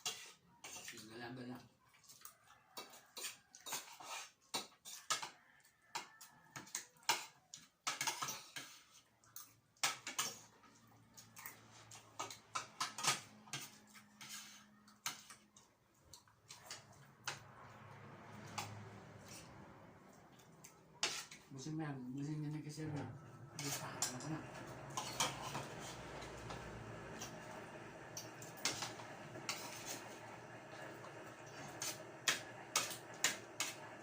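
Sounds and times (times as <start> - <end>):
cutlery clinking on plates: 2.8 - 10.5, 11.4 - 15.6, 18.4 - 19.4, 23.6 - 27.4.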